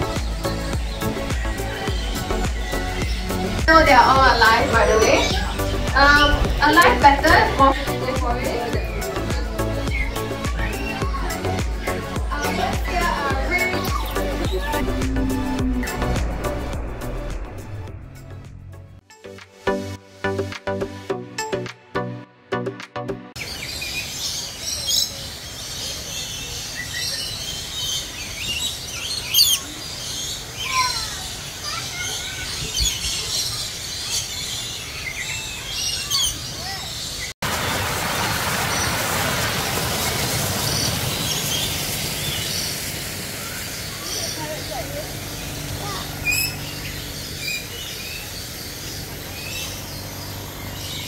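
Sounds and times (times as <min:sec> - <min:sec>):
birds chirping: 0:00.0 - 0:19.0, 0:23.4 - 0:51.0
low background rumble: 0:12.6 - 0:19.0.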